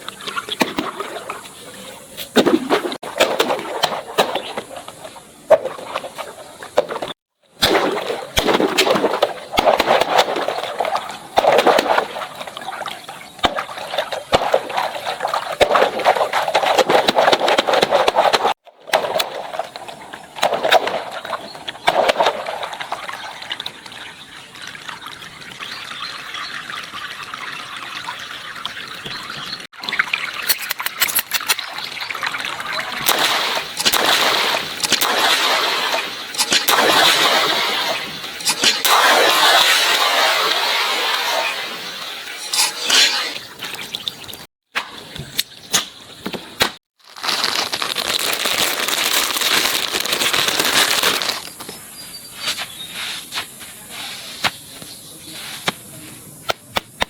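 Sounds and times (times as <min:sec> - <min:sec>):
water gushing and splashing: 0:00.0 - 0:44.5.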